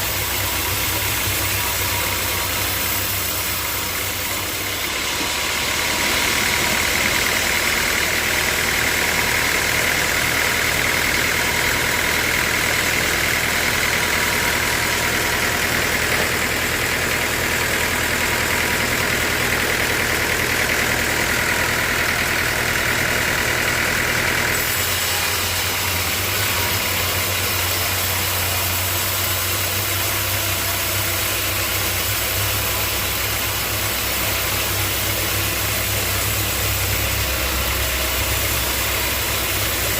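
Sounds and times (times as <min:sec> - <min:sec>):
sawmill motor running: 0:00.0 - 0:39.9.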